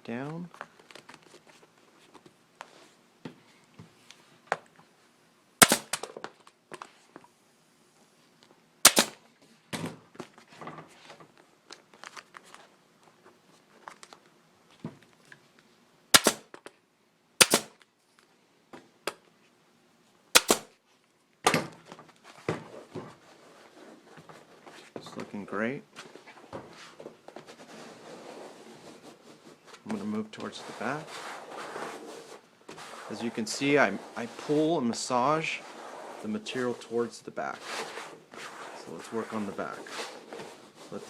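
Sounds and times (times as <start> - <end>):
staple gun firing: 5.6 - 6.1, 8.9 - 9.2, 16.2 - 16.5, 17.4 - 17.8, 20.4 - 20.7
handling clicks: 20.4 - 20.7.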